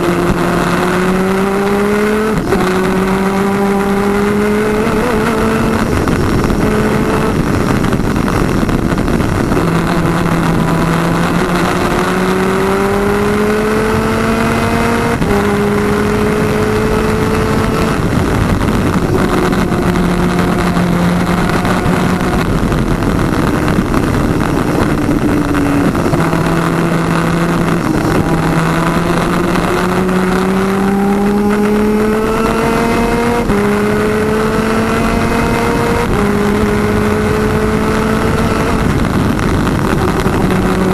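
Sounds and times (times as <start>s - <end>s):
kart engine revving: 0.0s - 40.9s
wind and road noise: 0.0s - 40.9s.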